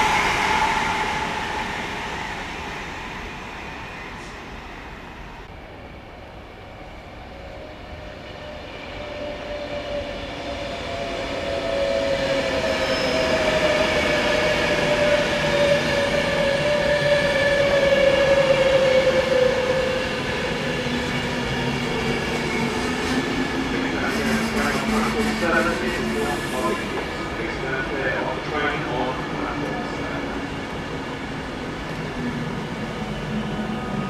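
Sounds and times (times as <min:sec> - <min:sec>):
train whine falling in pitch: 0:00.0 - 0:05.4
train rumble: 0:00.0 - 0:05.6, 0:13.4 - 0:34.0.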